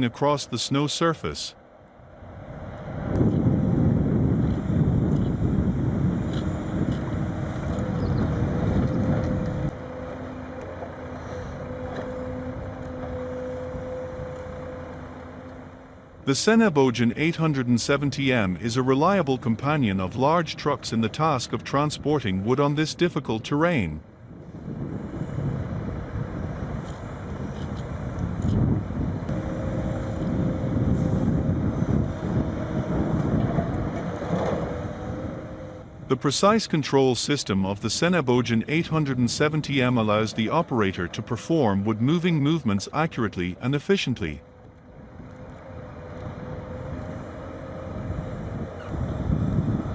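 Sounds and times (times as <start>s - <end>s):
heavy vehicle engine running: 0.0s - 49.9s
wind noise on microphone: 2.9s - 9.8s, 24.1s - 36.1s, 45.8s - 49.9s.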